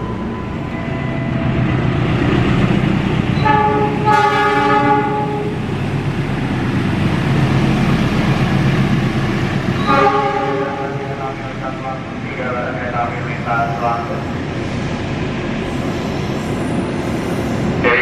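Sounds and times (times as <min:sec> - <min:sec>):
train rumbling on track: 0:00.0 - 0:18.0
locomotive horn: 0:03.4 - 0:05.6, 0:09.8 - 0:11.2.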